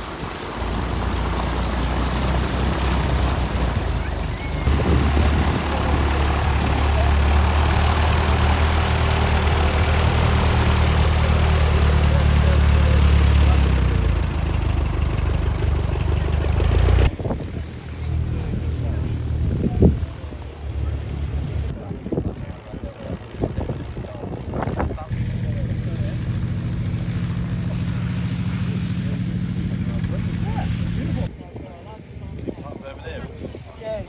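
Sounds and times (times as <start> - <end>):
piston engine droning: 0.0 - 19.6
propeller noise: 0.0 - 33.8.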